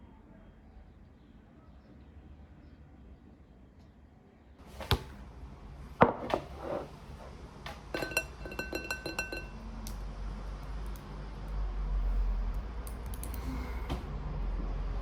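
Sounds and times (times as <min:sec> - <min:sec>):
tableware knocks: 0:06.0 - 0:06.9, 0:07.9 - 0:09.6
ringing clinks of tableware: 0:08.0 - 0:09.6.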